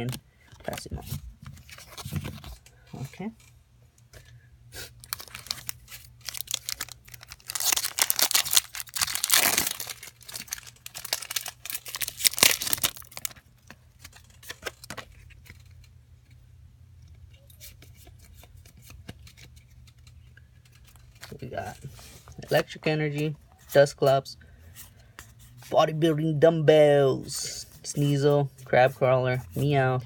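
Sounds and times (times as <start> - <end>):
foil wrapper crinkling: 5.0 - 15.0.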